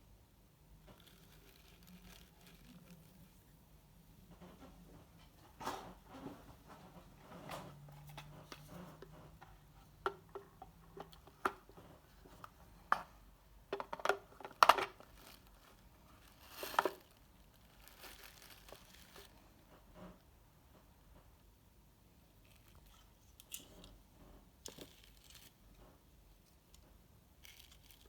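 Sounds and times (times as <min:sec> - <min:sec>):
rustling scrape: 0:00.9 - 0:03.6, 0:14.9 - 0:19.6
clicks and taps with crinkling: 0:04.3 - 0:15.4.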